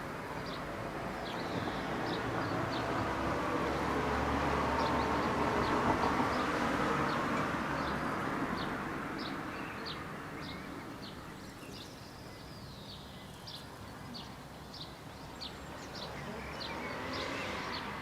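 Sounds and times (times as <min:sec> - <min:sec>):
passing vehicle rumble: 0:00.1 - 0:11.2, 0:15.3 - 0:18.0.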